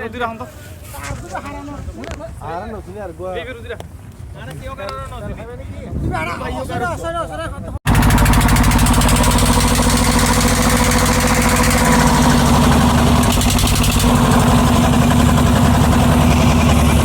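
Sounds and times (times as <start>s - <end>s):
boat engine chugging: 7.9s - 17.0s.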